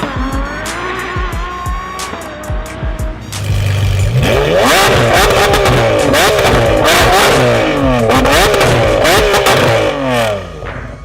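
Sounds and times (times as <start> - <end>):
sports car engine revving: 0.0 - 10.6
sharp exhaust cracks: 3.4 - 10.6.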